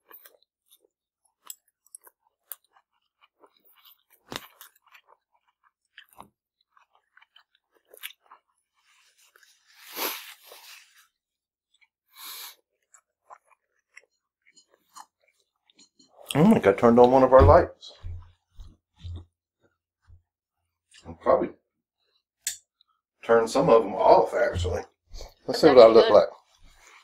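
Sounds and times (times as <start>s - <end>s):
chewing with mouth clicks: 0.0s - 9.6s, 11.6s - 17.1s.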